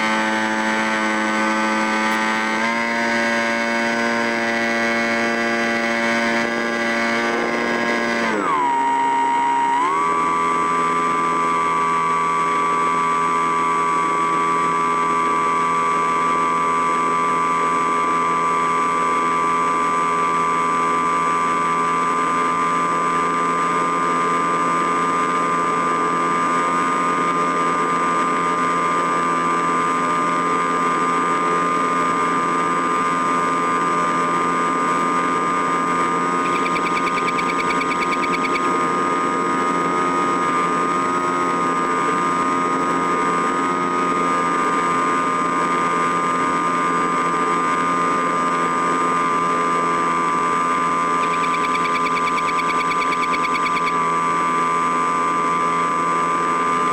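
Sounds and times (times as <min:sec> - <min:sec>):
small motor whining: 0:00.0 - 0:11.4, 0:36.2 - 0:39.0, 0:51.1 - 0:54.0.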